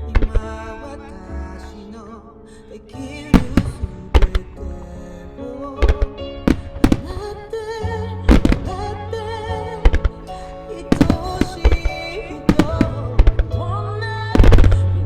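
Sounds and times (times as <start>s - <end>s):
music: 0.0s - 15.0s
fireworks bangs: 3.3s - 13.6s, 14.3s - 15.0s.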